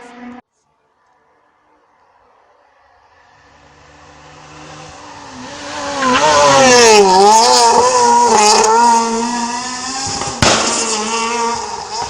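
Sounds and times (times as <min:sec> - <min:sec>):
rally car passing at speed: 0:00.0 - 0:00.4, 0:01.2 - 0:12.0
sharp crack: 0:10.1 - 0:11.3.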